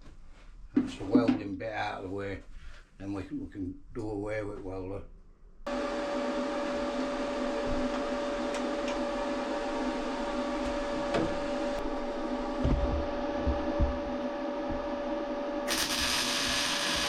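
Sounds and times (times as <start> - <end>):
electric motor whining: 5.7 - 17.0
low knocks: 12.6 - 14.9.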